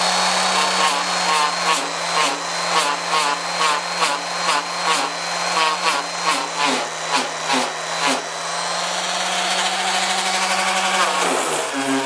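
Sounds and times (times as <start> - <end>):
electric sander on metal: 0.0 - 12.0.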